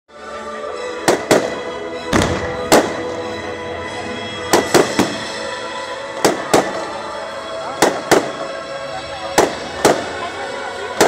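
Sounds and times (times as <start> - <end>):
music playing: 0.1 - 11.0
fireworks exploding: 1.0 - 3.4, 4.2 - 8.6, 9.2 - 11.0.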